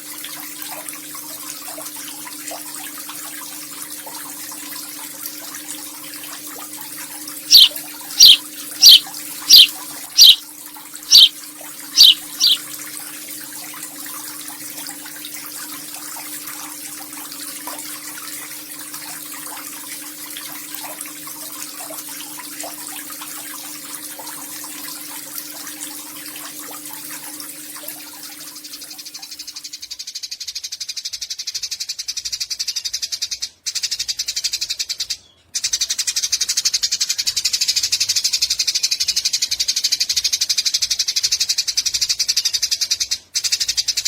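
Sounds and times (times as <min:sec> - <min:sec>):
running water from a tap: 0:00.0 - 0:29.8
sparrow chirping: 0:07.5 - 0:10.4, 0:11.1 - 0:11.3, 0:12.0 - 0:12.6.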